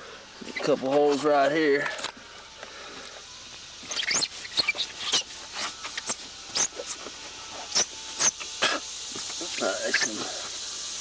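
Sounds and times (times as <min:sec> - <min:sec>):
rag rubbing fiberglass: 0:03.8 - 0:08.5.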